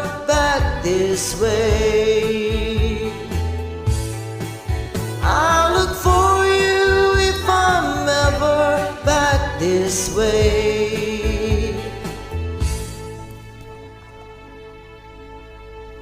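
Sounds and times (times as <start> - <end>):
person singing with vibrato: 0.0 - 3.7, 5.2 - 12.8
karaoke backing track: 0.0 - 16.0.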